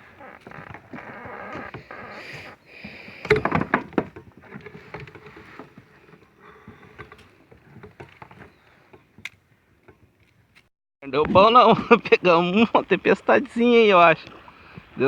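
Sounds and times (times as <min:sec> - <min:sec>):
knocks and clicks on a kayak: 0:00.0 - 0:11.5.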